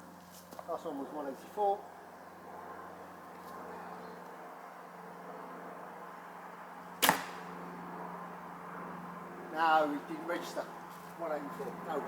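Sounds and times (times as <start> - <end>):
bow shot crack: 7.0 - 7.6.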